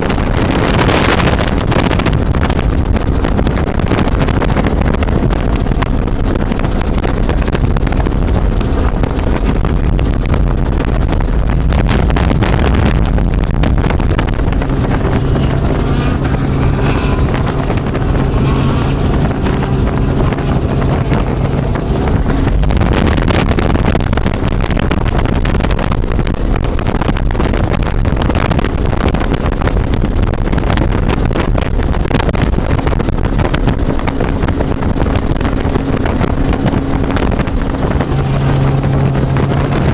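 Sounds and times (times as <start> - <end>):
helicopter rotor and engine rumble: 0.0 - 39.9
steady hum: 0.0 - 39.9
wind buffeting microphone: 0.0 - 39.9.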